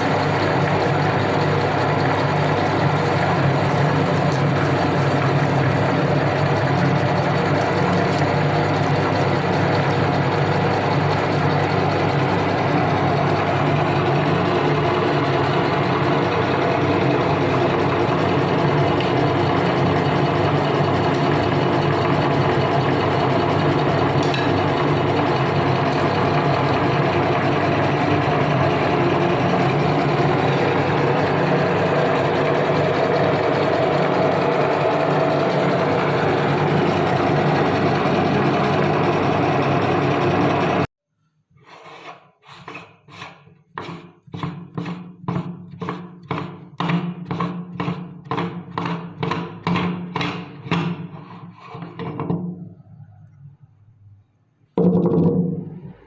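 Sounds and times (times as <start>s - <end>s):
electric meat grinder humming: 0.0s - 40.9s.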